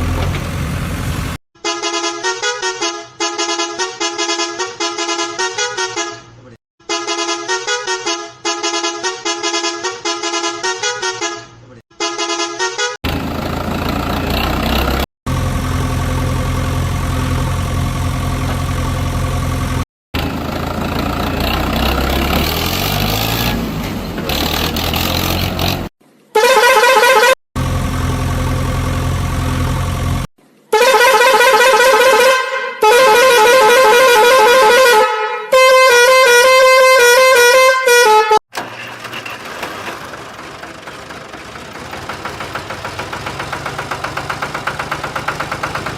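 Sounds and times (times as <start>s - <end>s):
loud horn blasts: 1.6s - 13.0s, 26.4s - 27.4s, 30.7s - 38.4s
engine idling: 13.1s - 22.5s, 27.6s - 30.3s, 38.6s - 45.9s
engine running rising in pitch: 13.1s - 25.8s, 27.6s - 30.3s
warbling melodic horn: 30.8s - 38.4s.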